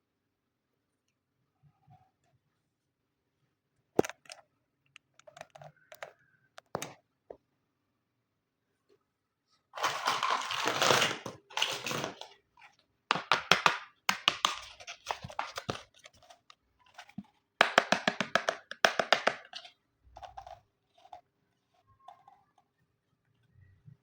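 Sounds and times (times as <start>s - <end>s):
plastic pieces clicking: 9.8s - 12.4s, 13.1s - 21.2s
plastic packaging crinkling: 9.8s - 12.7s, 14.3s - 17.3s.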